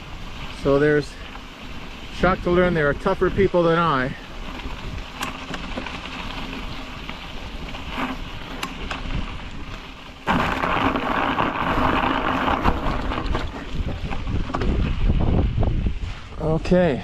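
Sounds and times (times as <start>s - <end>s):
wind and road noise: 0.0s - 17.0s
bicycle jolting knocks: 4.6s - 7.2s, 10.2s - 15.4s.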